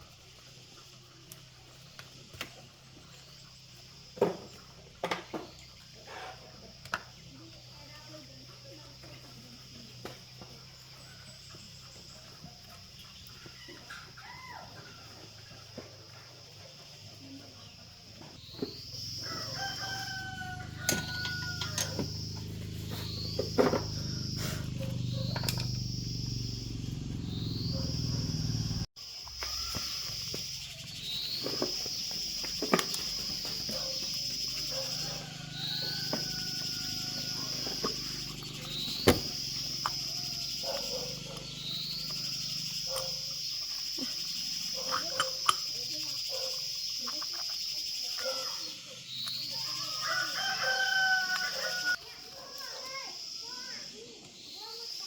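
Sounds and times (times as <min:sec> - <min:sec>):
insects droning: 0:00.0 - 0:55.0
chicken calling: 0:49.5 - 0:52.0.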